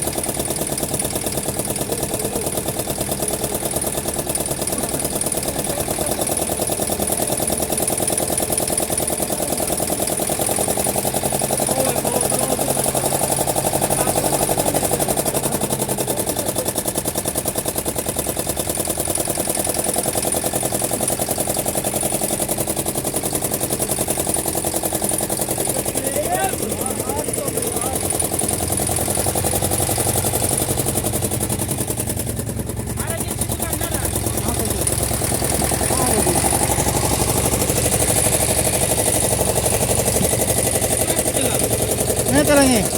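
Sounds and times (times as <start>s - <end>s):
engine chugging: 0.0s - 42.9s.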